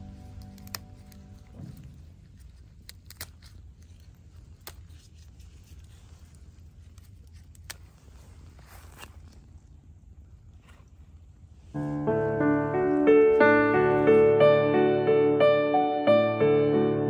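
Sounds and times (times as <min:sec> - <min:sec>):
background music: 0:00.0 - 0:01.9, 0:11.8 - 0:17.0
faint low outdoor rumble: 0:00.0 - 0:14.6.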